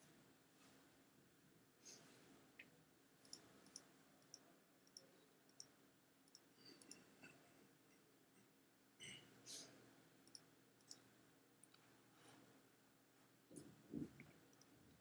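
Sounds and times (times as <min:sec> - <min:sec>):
computer mouse clicks: 0:03.2 - 0:05.7, 0:06.3 - 0:07.0, 0:10.3 - 0:11.0.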